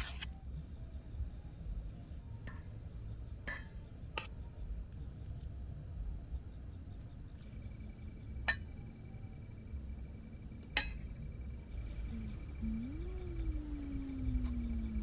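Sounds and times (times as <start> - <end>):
crickets chirring: 0.0 - 15.0
low rumble: 11.4 - 15.0.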